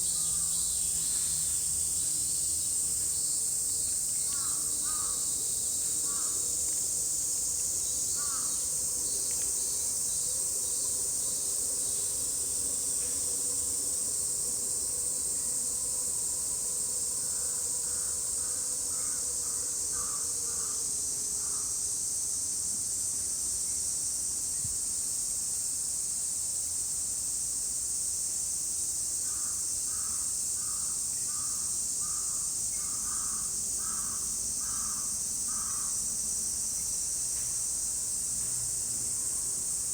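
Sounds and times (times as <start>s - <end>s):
cicadas droning: 0.0s - 39.9s
crows cawing: 4.4s - 5.2s, 33.0s - 35.9s.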